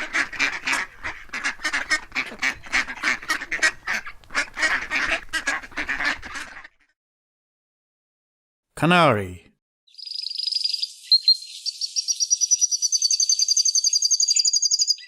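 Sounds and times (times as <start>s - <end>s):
ducks quacking: 0.0s - 6.9s.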